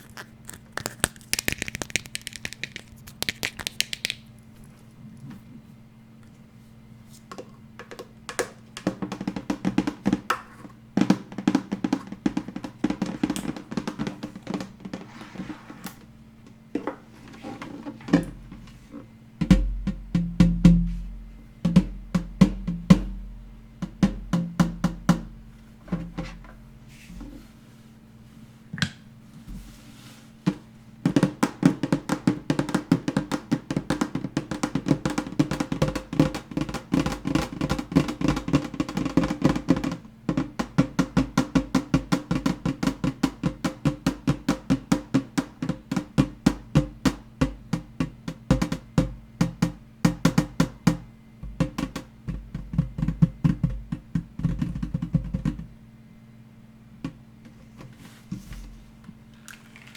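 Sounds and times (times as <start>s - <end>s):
fast tapping on hard objects: 0.0s - 4.4s, 7.3s - 15.3s, 21.6s - 23.2s, 23.8s - 26.4s, 30.5s - 55.7s.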